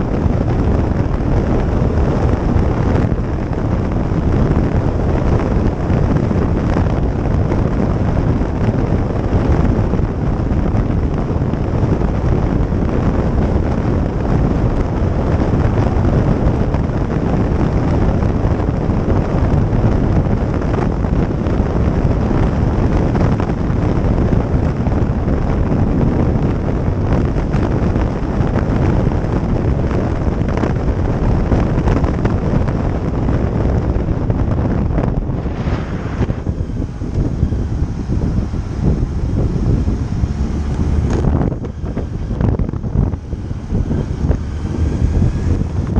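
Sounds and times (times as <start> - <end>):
motorcycle running: 0.0 - 45.9
wind rushing over microphone: 0.0 - 45.9.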